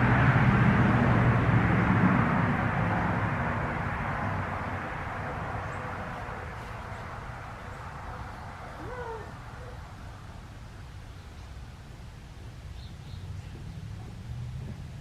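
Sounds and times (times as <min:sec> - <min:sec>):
passing vehicle engine rumble: 0:00.0 - 0:15.0
bird call: 0:08.7 - 0:09.9.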